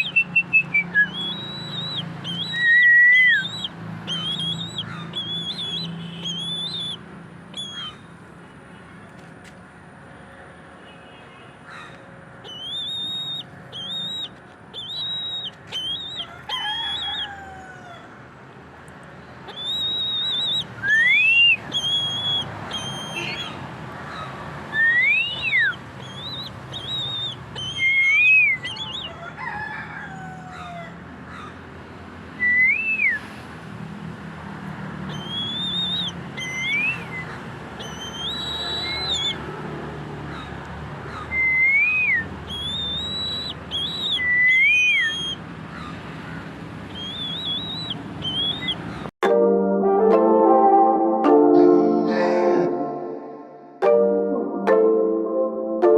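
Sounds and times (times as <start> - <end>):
bird rising and falling whistles: 0.0 - 7.0, 12.5 - 17.4, 19.5 - 23.6, 24.7 - 29.2, 32.4 - 33.3, 35.1 - 39.4, 41.3 - 45.4, 46.9 - 48.8
bird piping calls: 0.0 - 8.0, 11.8 - 17.6, 19.4 - 29.4, 35.0 - 39.5, 40.3 - 49.1.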